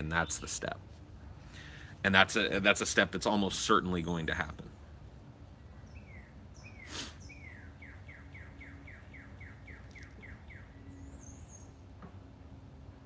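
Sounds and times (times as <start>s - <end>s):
faint steady hum: 0.0s - 13.0s
songbird trill and warble: 5.7s - 11.9s.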